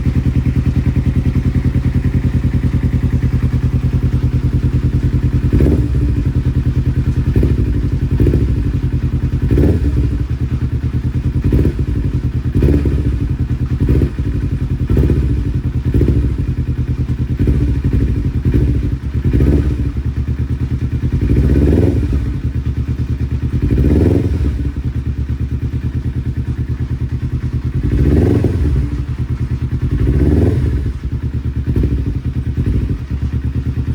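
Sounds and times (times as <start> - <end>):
motorcycle engine idling with throttle blips: 0.0 - 33.9.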